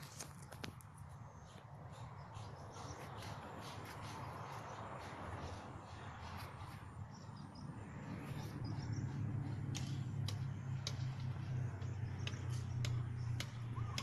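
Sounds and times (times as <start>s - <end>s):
sharp ticks: 9.0s - 14.0s.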